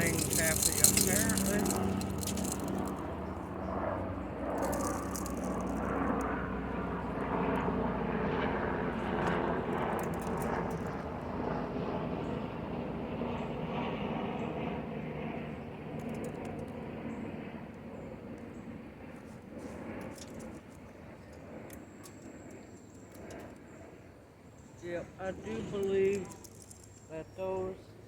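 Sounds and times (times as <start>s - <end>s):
low engine drone: 0.0s - 11.2s.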